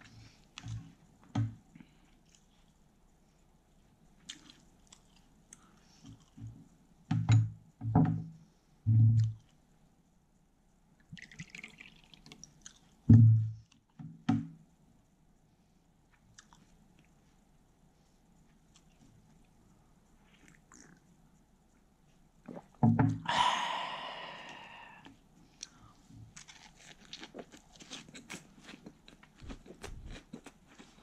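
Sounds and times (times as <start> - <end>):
person chewing: 1.8 - 2.8, 4.1 - 6.6, 11.2 - 13.1, 16.1 - 17.2, 20.2 - 21.1, 23.6 - 31.0
faint crisp crunches: 25.6 - 31.0.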